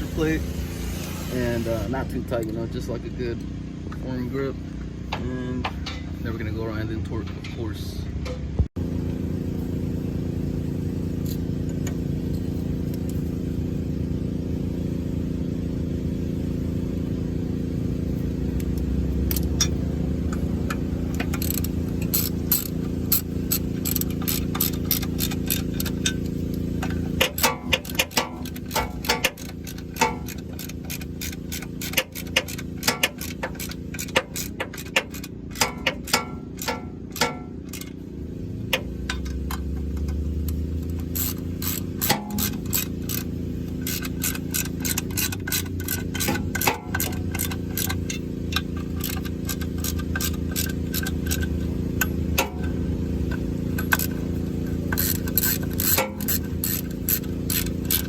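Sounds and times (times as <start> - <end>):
steady low hum: 0.0 - 58.0
hand ratchet clicking: 18.6 - 38.0, 38.7 - 58.0.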